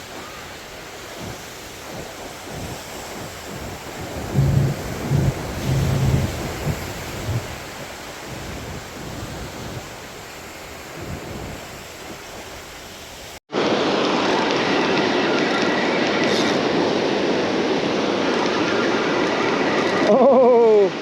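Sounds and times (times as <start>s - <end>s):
wind buffeting microphone: 0.0s - 13.0s
surf washing on beach: 0.0s - 21.0s.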